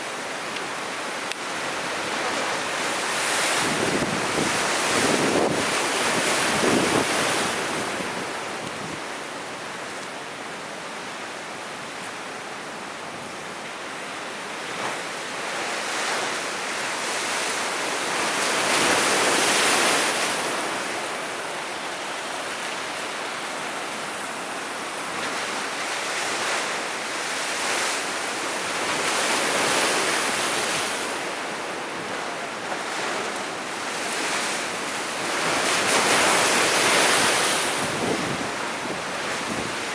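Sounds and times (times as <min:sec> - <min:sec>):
sea waves breaking on shore: 0:00.0 - 0:39.9
wind on microphone: 0:03.2 - 0:09.1, 0:36.2 - 0:39.9.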